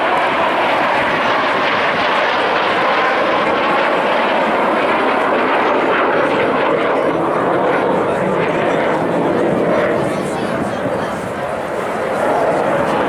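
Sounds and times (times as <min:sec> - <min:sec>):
aircraft engine rushing: 0:00.0 - 0:13.0.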